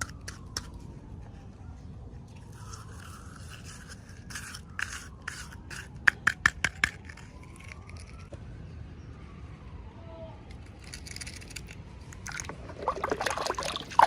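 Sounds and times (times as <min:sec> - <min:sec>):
toy packaging rustling: 0:02.4 - 0:08.3, 0:10.5 - 0:12.7.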